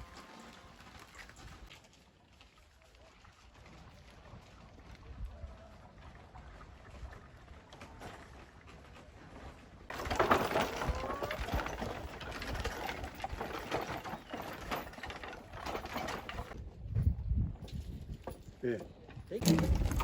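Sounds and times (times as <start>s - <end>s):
wooden cart wheels creaking: 9.9s - 16.6s, 17.7s - 20.0s.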